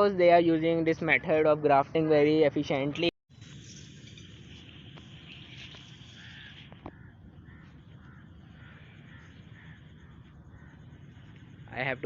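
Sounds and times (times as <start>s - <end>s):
steady high hiss: 3.3s - 6.8s
birds chirping: 3.7s - 12.0s.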